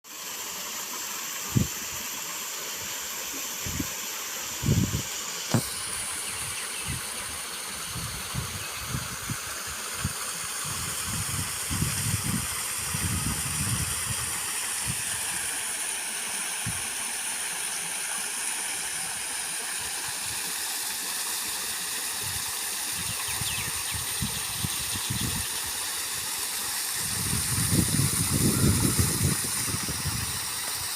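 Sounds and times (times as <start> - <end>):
flowing water rushing: 0.0 - 30.9
wind buffeting microphone: 7.9 - 9.4, 10.0 - 15.0, 27.0 - 30.5.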